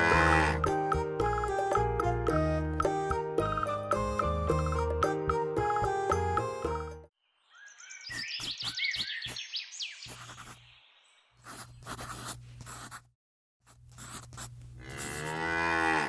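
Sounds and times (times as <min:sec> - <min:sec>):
cows mooing: 0:00.0 - 0:00.8, 0:14.8 - 0:16.0
birds chirping: 0:07.2 - 0:11.9.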